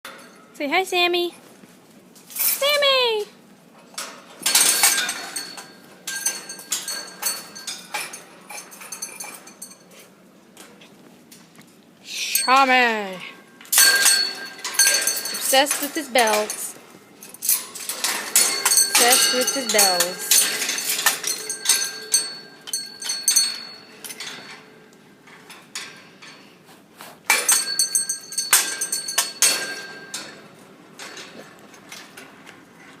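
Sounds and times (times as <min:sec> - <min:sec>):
small metal bell ringing: 0:13.8 - 0:24.7, 0:27.3 - 0:30.4.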